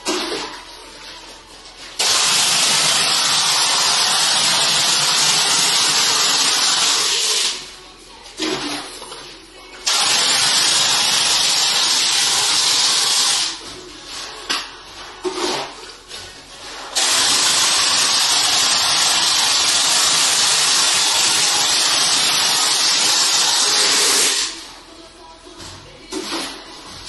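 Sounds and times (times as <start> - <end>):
plaster spray gun hissing: 2.0 - 7.6, 9.9 - 13.6, 17.0 - 24.6.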